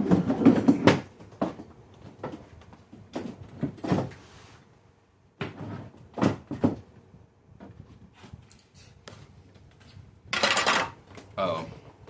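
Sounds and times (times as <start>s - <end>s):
household knocks and bumps: 0.0s - 4.2s, 5.4s - 8.1s, 10.3s - 11.3s.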